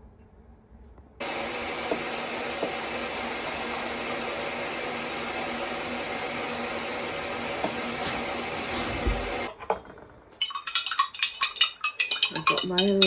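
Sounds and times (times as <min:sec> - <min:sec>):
kitchen appliance rushing noise: 0:01.2 - 0:10.3
glass and cutlery clinking: 0:09.5 - 0:13.0.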